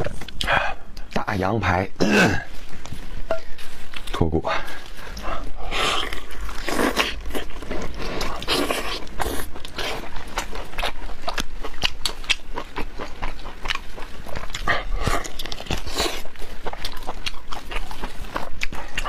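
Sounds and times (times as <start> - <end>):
person chewing meat: 0.0 - 1.2, 2.5 - 19.0
tearing and slurping noises: 4.8 - 19.0.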